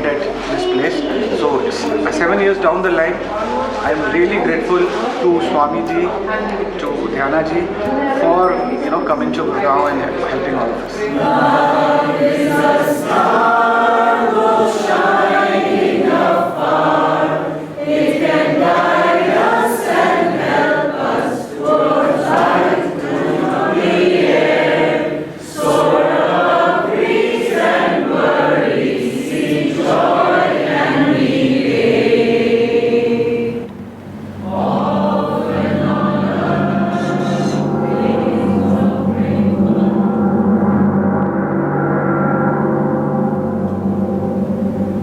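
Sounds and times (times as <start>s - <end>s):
held low notes: 10.7s - 45.0s
group singing a chant: 10.9s - 41.2s.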